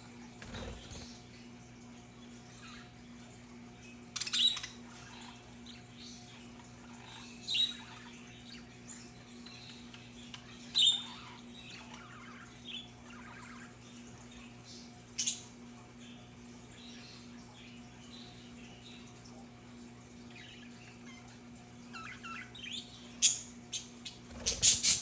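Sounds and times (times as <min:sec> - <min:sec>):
budgerigars chattering: 0:24.3 - 0:25.0.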